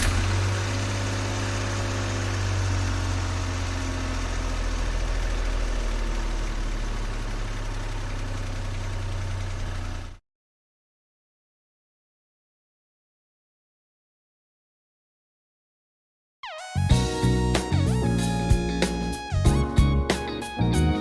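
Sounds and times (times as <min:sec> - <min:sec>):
vehicle engine idling: 0:00.0 - 0:10.2.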